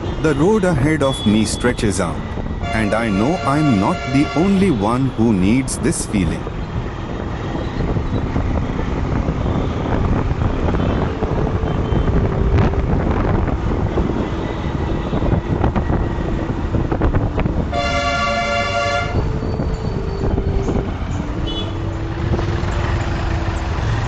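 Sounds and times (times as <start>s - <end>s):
wind and road noise: 0.0s - 24.0s
vehicle horn blaring: 1.0s - 5.6s, 10.5s - 16.7s, 17.5s - 22.1s
motorcycle engine: 6.6s - 24.0s.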